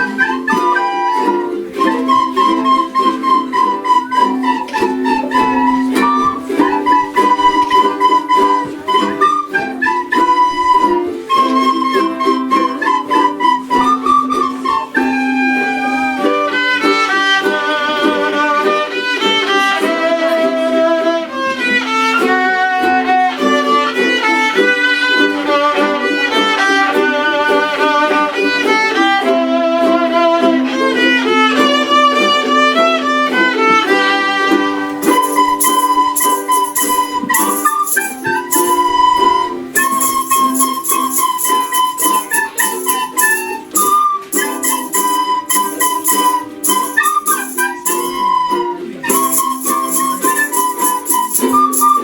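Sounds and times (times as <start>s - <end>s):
high jingling percussion: 35.0s - 48.3s, 49.1s - 52.0s.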